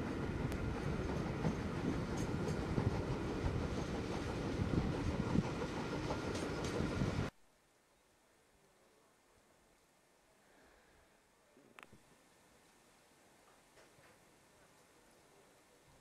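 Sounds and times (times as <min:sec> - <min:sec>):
train wheels rumbling on rail: 0:00.0 - 0:07.3.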